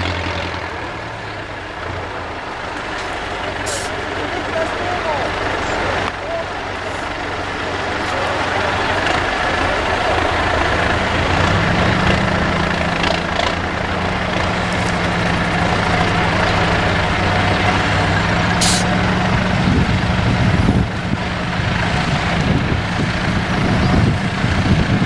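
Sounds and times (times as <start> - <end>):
truck diesel engine running hard: 0.0 - 25.0
short hiss: 3.6 - 4.1, 18.6 - 18.9.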